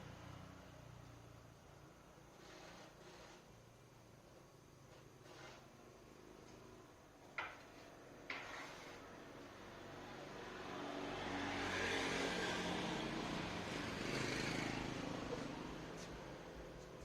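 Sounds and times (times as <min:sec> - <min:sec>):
vehicle engine passing by: 0:09.6 - 0:16.8.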